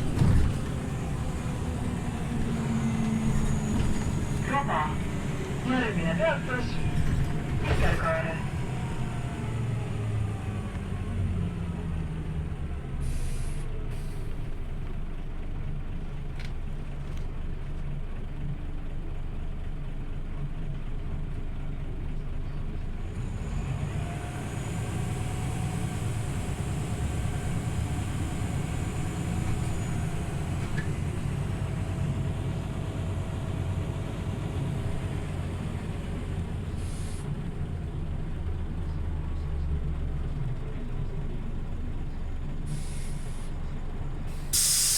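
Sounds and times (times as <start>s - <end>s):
bus engine drone: 0.0s - 44.9s
bus whine: 0.0s - 44.9s
air brake hisses: 13.0s - 14.4s, 36.8s - 37.3s, 42.7s - 43.5s, 44.3s - 44.9s.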